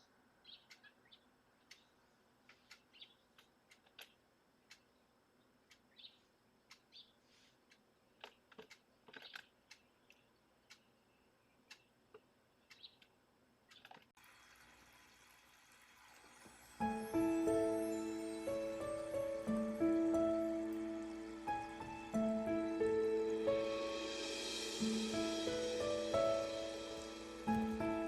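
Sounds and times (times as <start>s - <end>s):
faint high bird chirps: 0.0s - 3.4s, 4.8s - 7.3s, 12.6s - 13.1s
light clicks: 5.6s - 10.9s
steady hiss: 14.2s - 28.0s.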